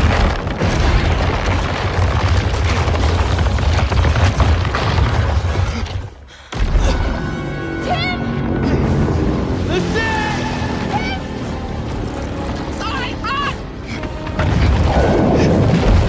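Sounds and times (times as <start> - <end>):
deep earthquake rumbling: 0.0 - 7.2, 14.2 - 16.0.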